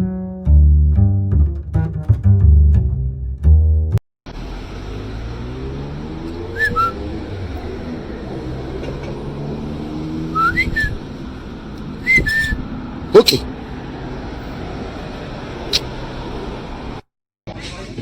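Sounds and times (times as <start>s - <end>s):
vehicle engine hum: 4.3s - 17.1s
two-note whistles: 6.4s - 7.1s, 10.3s - 11.0s, 12.0s - 12.6s.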